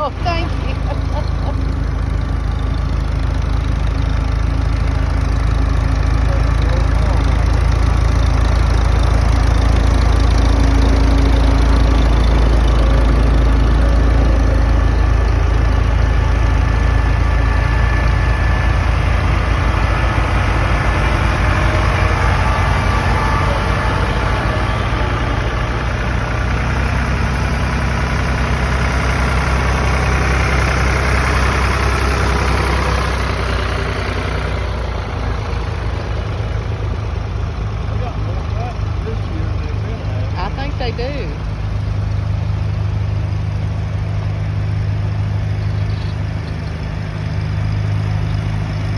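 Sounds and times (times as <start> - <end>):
tractor engine rumbling: 0.0 - 48.9.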